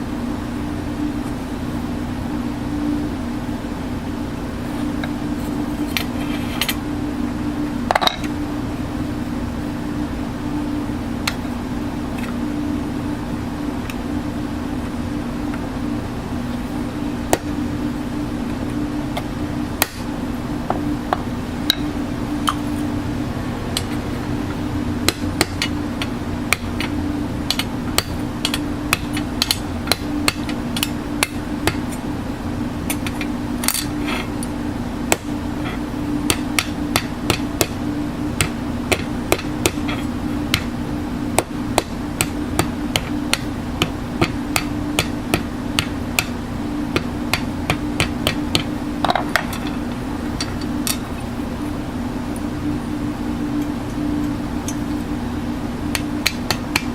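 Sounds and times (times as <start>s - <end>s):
low machine hum: 0.0s - 56.9s
hammer tapping on metal: 27.5s - 31.9s, 36.3s - 37.8s, 38.4s - 40.7s, 41.4s - 49.6s.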